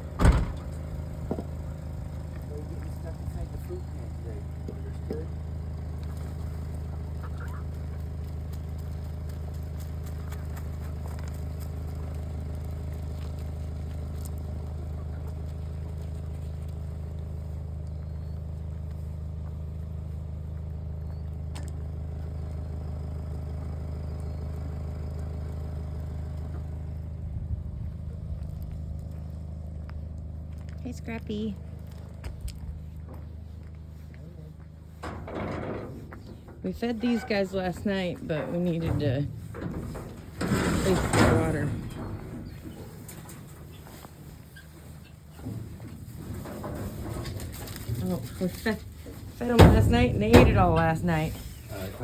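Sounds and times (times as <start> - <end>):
motor droning: 0.0 - 52.0
faint bird calls: 6.4 - 8.0.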